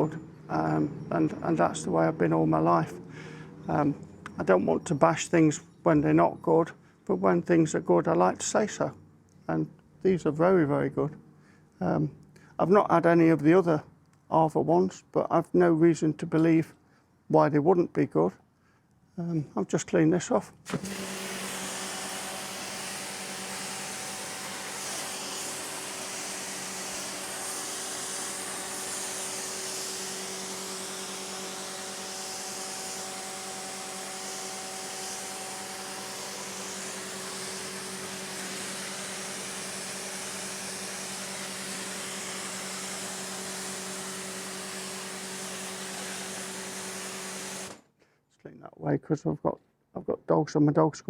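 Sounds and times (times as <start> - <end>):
pressure washer motor hum: 0.0 - 4.4, 20.6 - 47.8
water jet hissing: 20.7 - 32.8, 33.5 - 47.8.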